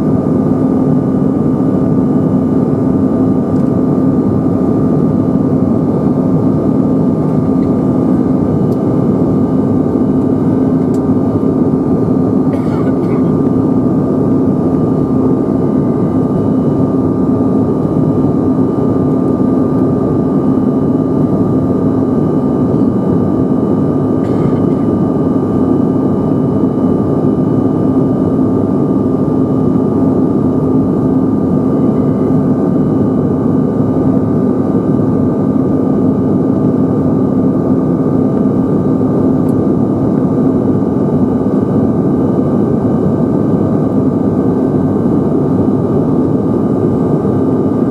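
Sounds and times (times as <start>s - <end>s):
faint high whine: 0.0s - 47.9s
jet engines droning: 0.0s - 47.9s
steady low hum: 0.0s - 47.9s.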